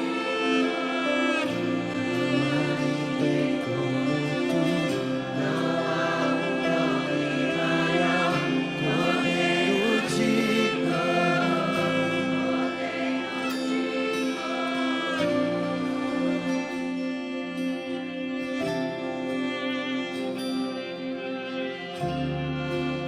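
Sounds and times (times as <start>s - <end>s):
gospel choir backing music: 0.0s - 23.0s.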